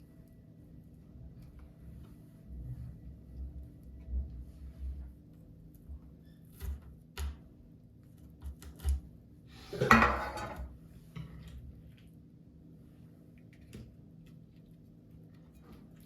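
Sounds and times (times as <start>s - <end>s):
dishes clattering: 9.7s - 10.6s
dishes clinking: 9.7s - 10.6s.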